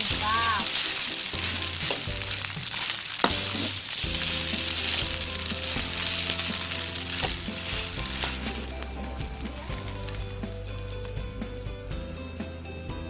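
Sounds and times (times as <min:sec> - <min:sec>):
rice sizzling in a pan: 0:00.0 - 0:11.7
background music: 0:00.0 - 0:13.0.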